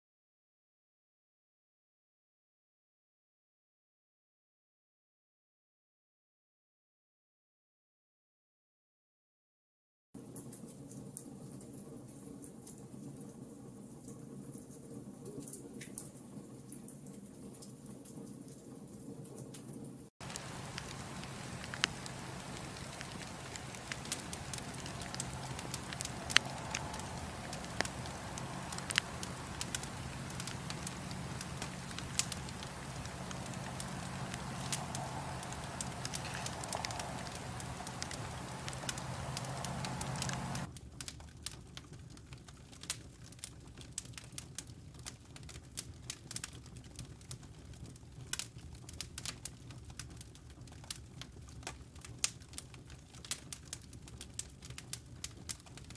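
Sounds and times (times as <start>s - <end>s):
steady rushing with low hum: 20.2s - 40.7s
wood fire crackling and popping: 20.2s - 55.9s.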